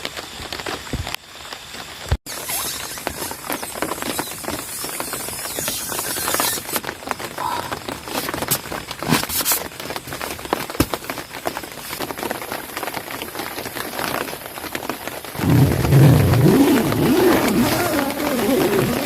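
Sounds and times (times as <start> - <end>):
rain pattering: 6.3 - 19.0.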